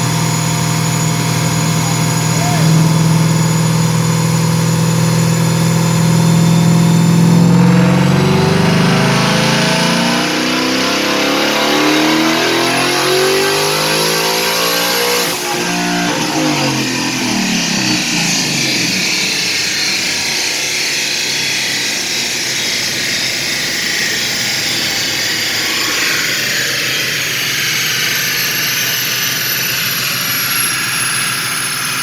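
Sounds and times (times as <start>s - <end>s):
engine revs falling: 0.0s - 31.9s
faint high whistle: 0.6s - 7.2s
loud rushing noise: 23.1s - 28.1s.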